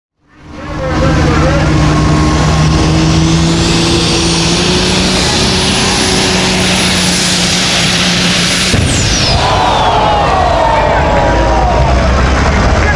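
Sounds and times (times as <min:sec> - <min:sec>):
high whine: 0:00.2 - 0:12.9
tractor engine at high revs: 0:00.2 - 0:12.9.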